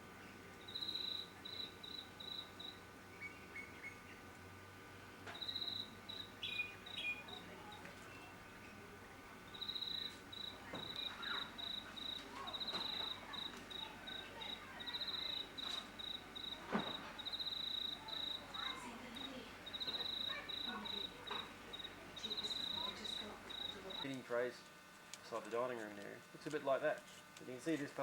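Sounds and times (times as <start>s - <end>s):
cricket chirping: 0.5s - 4.3s, 5.2s - 8.3s, 9.4s - 24.5s
bird calls: 0.7s - 4.3s, 5.3s - 8.3s, 9.5s - 24.1s.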